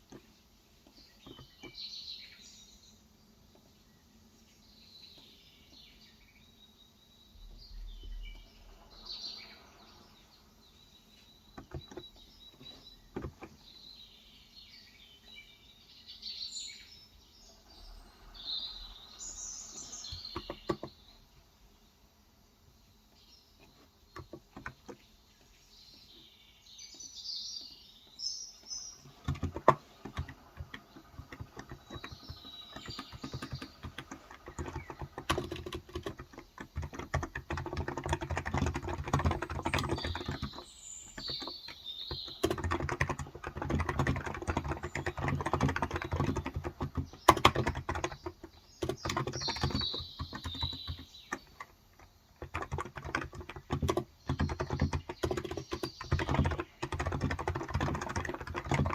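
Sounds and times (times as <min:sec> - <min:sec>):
birds chirping: 0:00.0 - 0:58.9
typing on a keyboard: 0:11.5 - 0:13.7, 0:19.8 - 0:21.0, 0:23.7 - 0:25.0, 0:29.0 - 0:58.9.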